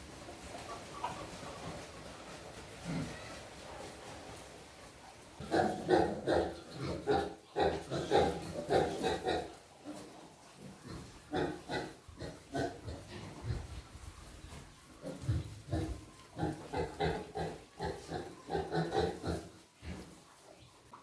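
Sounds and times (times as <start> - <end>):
pigs grunting: 2.8 - 3.4, 5.4 - 13.9, 15.0 - 20.3.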